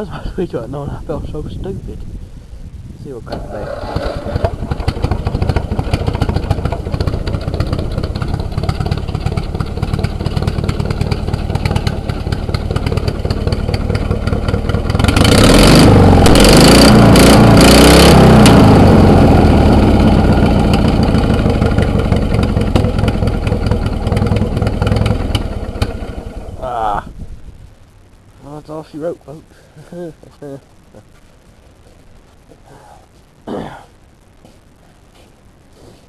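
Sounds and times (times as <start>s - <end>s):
lawn mower engine idling and revving: 3.3s - 26.6s.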